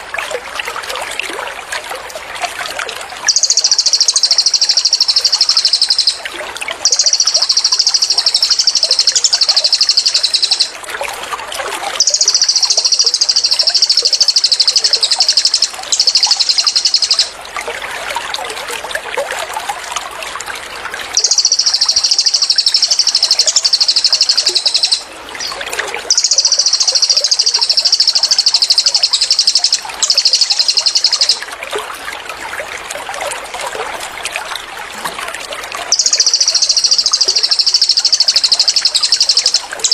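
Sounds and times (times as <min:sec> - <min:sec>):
trickling gurgling water: 0:00.0 - 0:39.9
bird singing high trill: 0:03.3 - 0:10.8, 0:12.0 - 0:17.4, 0:21.2 - 0:31.4, 0:35.9 - 0:39.9.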